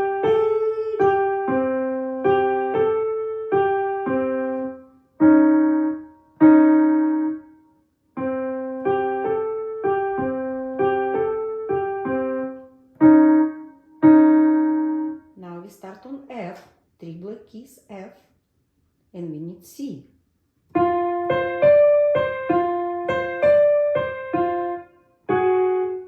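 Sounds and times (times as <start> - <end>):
simple piano melody: 0.0 - 15.4, 20.6 - 26.0.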